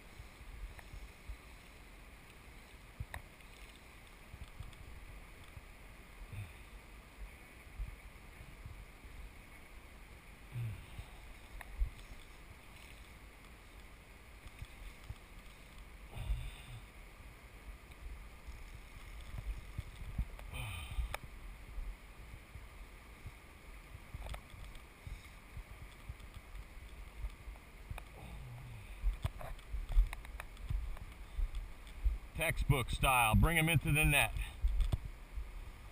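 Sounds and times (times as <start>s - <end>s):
wind buffeting microphone: 19.3s - 21.1s.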